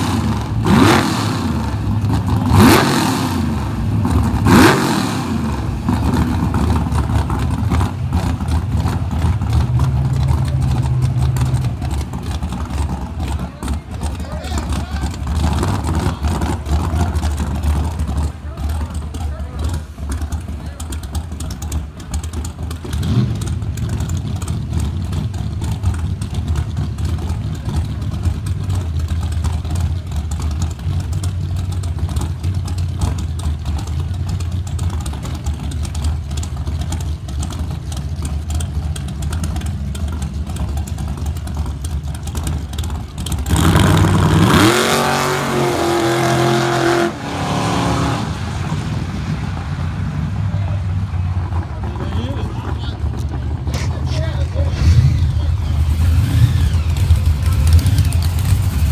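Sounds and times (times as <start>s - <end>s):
car engine idling and accelerating: 0.0s - 58.9s.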